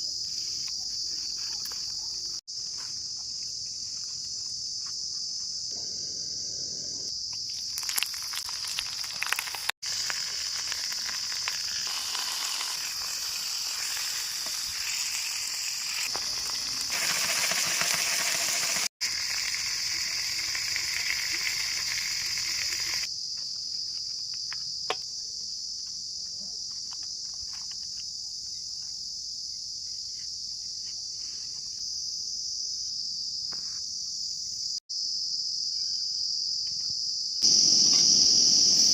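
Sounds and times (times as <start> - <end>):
crickets chirping: 0.0 - 38.9
meat frying sizzle: 7.6 - 23.1.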